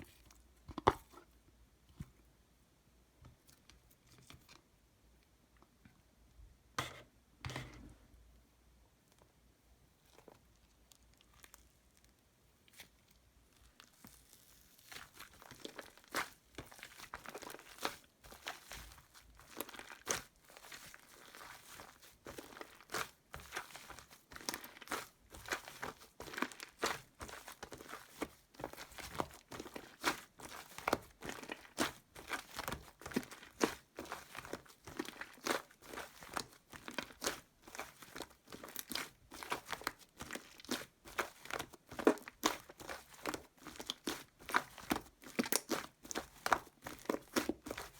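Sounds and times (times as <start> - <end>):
slime crackling and popping: 13.6 - 47.9.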